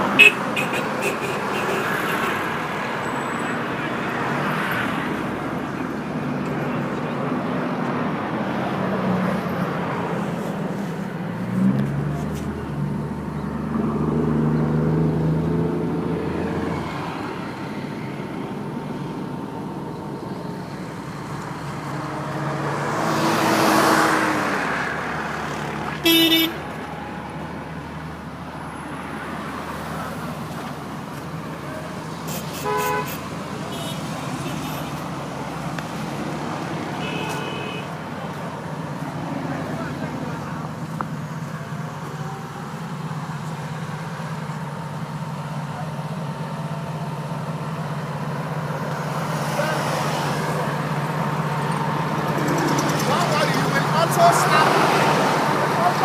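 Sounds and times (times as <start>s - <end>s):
vehicle engines passing: 0.0s - 56.0s
car horn toot: 0.1s - 2.4s, 26.0s - 26.7s, 32.3s - 35.0s, 37.0s - 38.0s.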